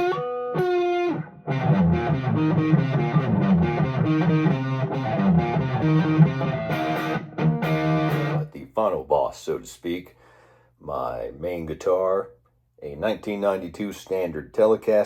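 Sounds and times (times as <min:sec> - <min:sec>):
overdriven electric guitar riff: 0:00.0 - 0:08.5.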